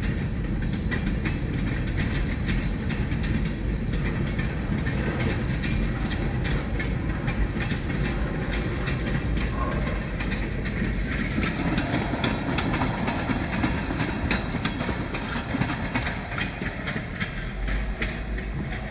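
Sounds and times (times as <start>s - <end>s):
freight train rumbling: 0.0s - 18.9s
wheels clicking over rail joints: 0.0s - 18.9s.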